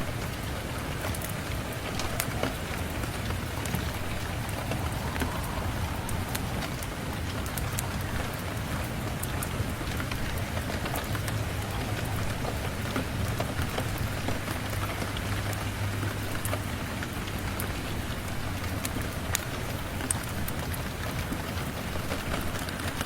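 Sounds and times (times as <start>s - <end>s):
low rumble: 0.0s - 15.3s
rain falling: 0.0s - 23.0s.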